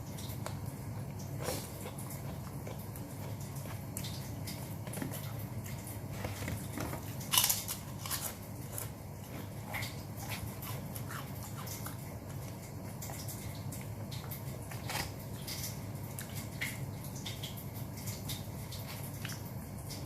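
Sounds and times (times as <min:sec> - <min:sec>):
person chewing and biting: 0:00.4 - 0:15.5.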